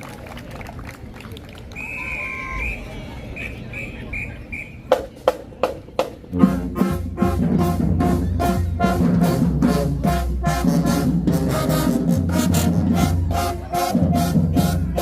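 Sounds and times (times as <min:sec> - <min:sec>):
marching band playing: 0:03.4 - 0:15.0.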